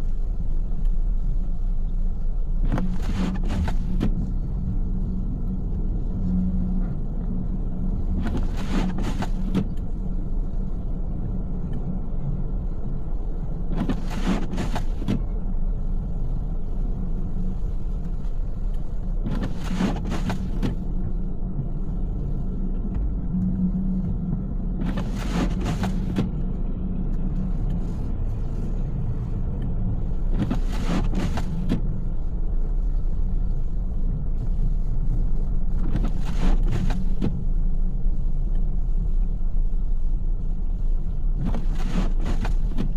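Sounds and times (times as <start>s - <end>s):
car road rumble in snow: 0.0s - 42.9s
windshield wipers sweeping: 2.5s - 5.5s, 6.2s - 10.8s, 13.4s - 42.9s.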